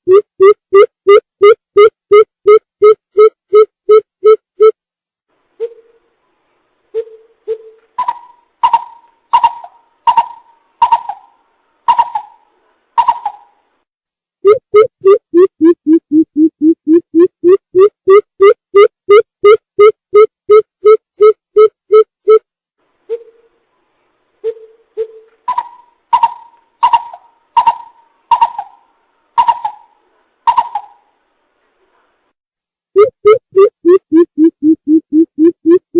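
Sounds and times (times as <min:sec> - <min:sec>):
bird hooting call: 0:07.0 - 0:12.4, 0:24.5 - 0:31.1.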